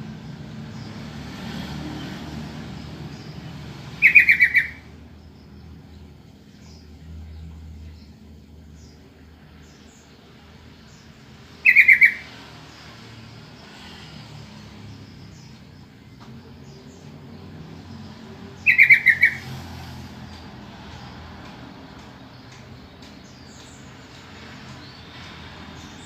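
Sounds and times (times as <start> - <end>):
bulbul calling: 3.1 - 5.0, 11.6 - 12.4, 18.6 - 19.6
faint high bird chirps: 3.1 - 9.1, 11.0 - 12.5, 14.9 - 19.6.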